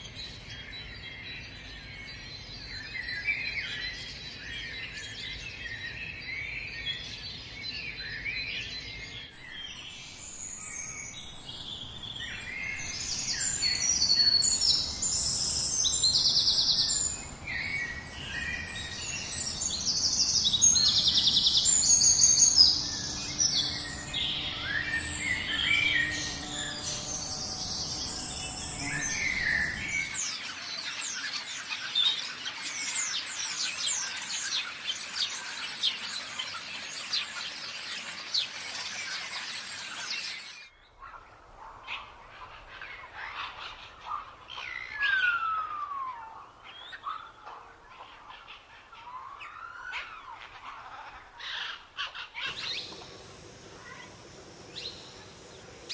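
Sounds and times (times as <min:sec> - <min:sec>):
birds singing and calling: 0:00.0 - 0:55.9
rapid bird chirping: 0:09.5 - 0:30.3, 0:52.4 - 0:55.9.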